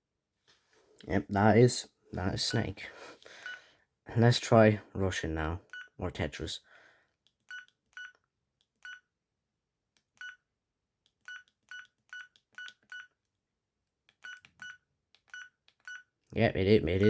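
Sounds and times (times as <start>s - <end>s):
phone key beeps: 7.5s - 8.2s, 8.8s - 9.1s, 10.2s - 10.4s, 11.2s - 13.2s, 14.2s - 16.1s.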